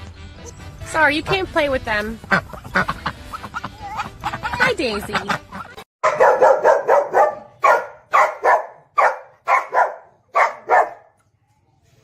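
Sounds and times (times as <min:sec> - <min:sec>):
dog barking: 0:06.0 - 0:11.2.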